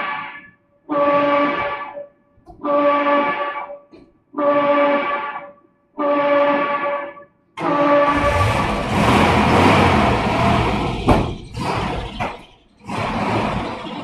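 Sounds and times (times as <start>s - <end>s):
fire engine air horn blasts: 0.0s - 2.0s, 2.6s - 8.8s.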